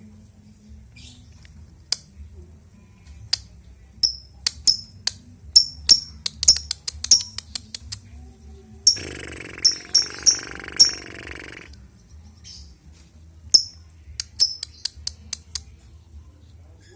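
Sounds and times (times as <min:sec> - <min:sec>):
bird high-pitched chirps: 0:08.9 - 0:11.7.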